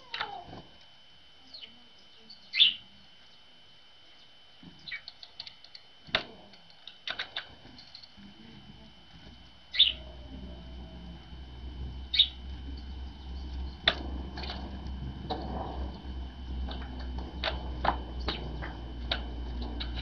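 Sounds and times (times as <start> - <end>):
birds calling with high notes: 1.5 - 3.5, 4.1 - 5.8, 9.7 - 11.1, 12.0 - 15.0
low rumble: 8.5 - 20.0.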